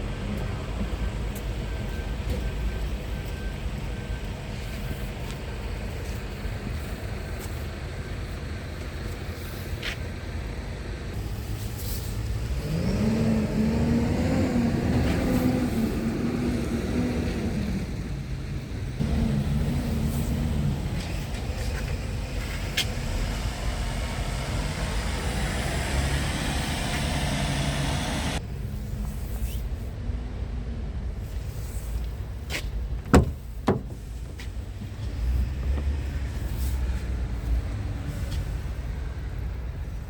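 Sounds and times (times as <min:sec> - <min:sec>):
diesel truck engine running: 0:11.2 - 0:28.4.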